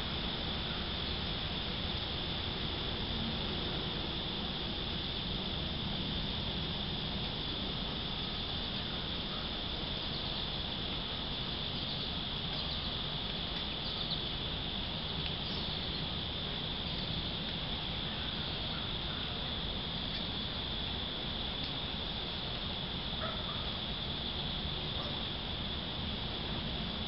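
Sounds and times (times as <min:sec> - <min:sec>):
high-pitched insect chorus: 0:00.0 - 0:27.0
faint bird chirps: 0:11.7 - 0:12.9, 0:13.8 - 0:14.3, 0:15.4 - 0:16.1.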